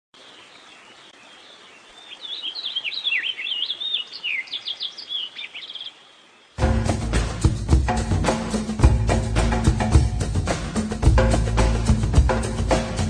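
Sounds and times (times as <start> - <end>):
bird singing chirps and trills: 0.2 - 7.0
music with a beat: 6.6 - 13.0.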